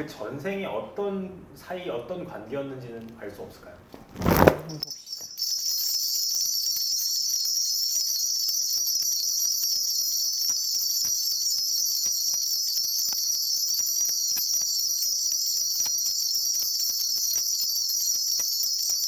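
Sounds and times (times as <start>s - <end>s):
high-pitched cricket chirping: 4.9s - 19.0s
faint scattered ticks: 5.1s - 19.0s.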